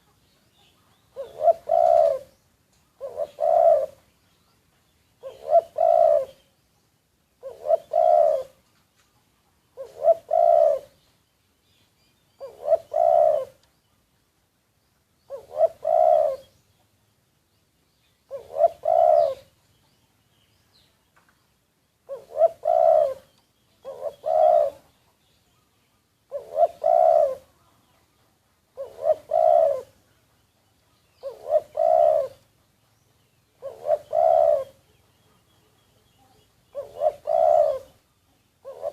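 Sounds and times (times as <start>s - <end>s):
dove cooing: 1.1s - 2.4s, 3.0s - 4.1s, 5.2s - 6.5s, 7.4s - 8.6s, 9.7s - 11.0s, 12.4s - 13.7s, 15.3s - 16.6s, 18.3s - 19.6s, 22.0s - 25.0s, 26.3s - 27.7s, 28.7s - 30.0s, 31.2s - 32.5s, 33.5s - 35.0s, 36.2s - 38.0s, 38.6s - 38.9s.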